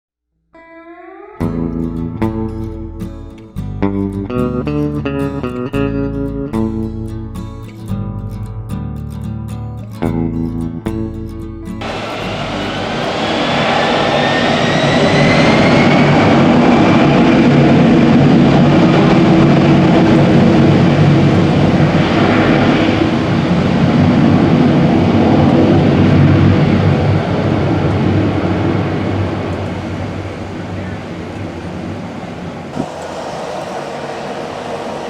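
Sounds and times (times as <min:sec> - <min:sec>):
jet engines roaring at takeoff: 0:11.8 - 0:35.0.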